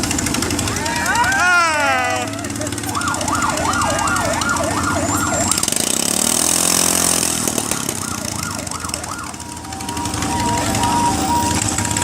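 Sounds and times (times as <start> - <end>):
engine revving: 0.0 - 12.0
siren sweeping up and down: 2.9 - 12.0.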